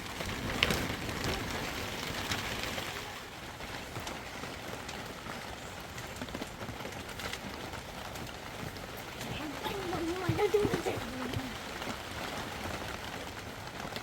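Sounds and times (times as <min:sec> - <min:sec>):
steady rushing hiss: 0:00.0 - 0:14.0
wind buffeting microphone: 0:03.6 - 0:13.8.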